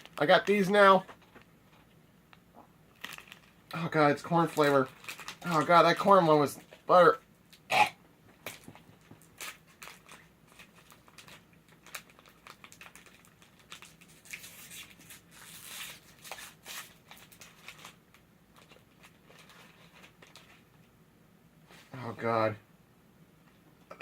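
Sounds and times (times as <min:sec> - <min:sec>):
wrapper crinkling and tearing: 0:00.0 - 0:01.4, 0:02.9 - 0:06.9, 0:08.4 - 0:20.7.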